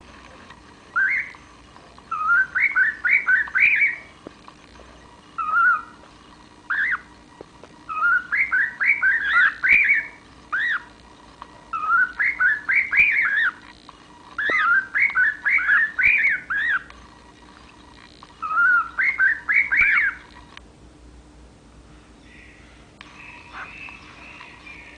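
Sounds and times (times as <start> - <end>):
cockatiel whistling: 0.9 - 1.4, 2.1 - 4.1, 5.4 - 6.0, 6.7 - 7.1, 7.9 - 10.9, 11.7 - 13.6, 14.4 - 16.9, 18.4 - 20.2.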